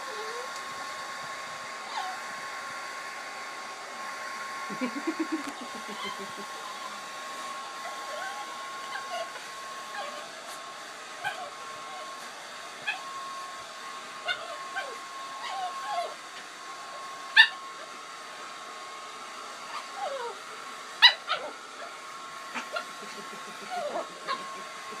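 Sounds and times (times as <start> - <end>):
dog whining and yelping: 0.0 - 0.5, 1.8 - 2.3, 4.8 - 7.0, 7.7 - 13.2, 14.2 - 16.4, 17.2 - 17.9, 19.5 - 25.0
hair dryer running: 0.0 - 25.0.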